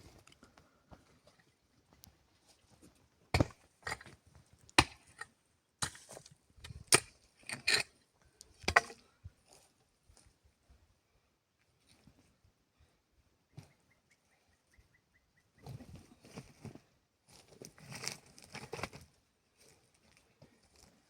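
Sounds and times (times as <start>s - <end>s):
axe chopping wood: 3.4s - 4.1s, 4.8s - 5.2s, 8.7s - 9.0s.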